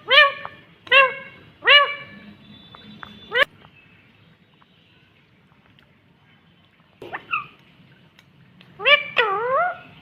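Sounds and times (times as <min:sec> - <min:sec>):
parakeet calling: 0:00.0 - 0:03.5, 0:08.8 - 0:10.0.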